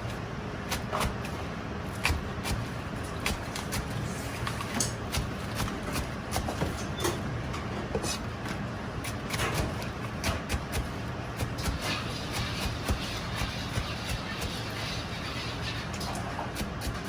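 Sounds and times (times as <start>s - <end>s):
steady low hum: 0.0s - 17.0s
utensils and containers clinking: 6.6s - 8.3s, 11.6s - 17.0s.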